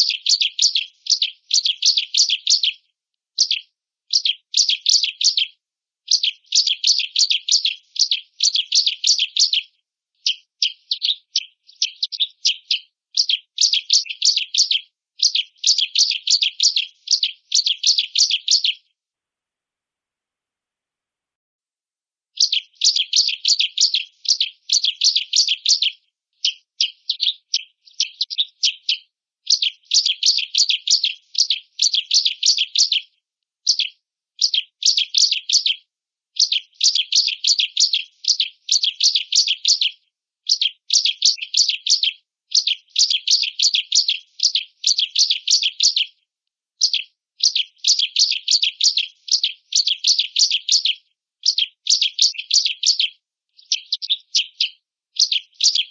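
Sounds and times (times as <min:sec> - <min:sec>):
bird singing high trills: 0:22.4 - 0:33.0.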